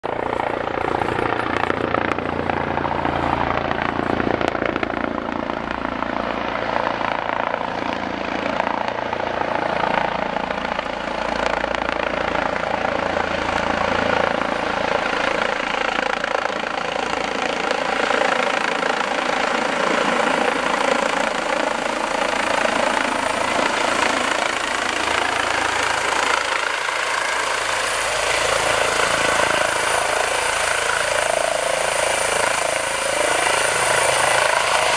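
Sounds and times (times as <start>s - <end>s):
helicopter engine and rotor drone: 0.0s - 34.9s.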